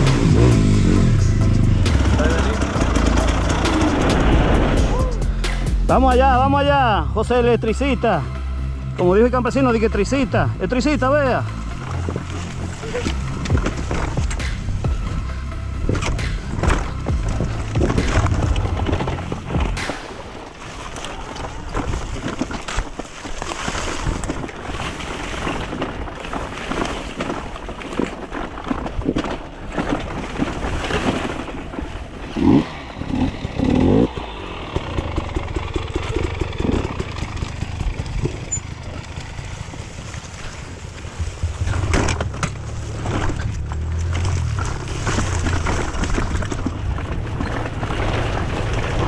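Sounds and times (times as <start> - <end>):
knocks and rattles: 0.0 - 6.4, 11.4 - 20.9
dirt bike engine running: 0.0 - 49.0.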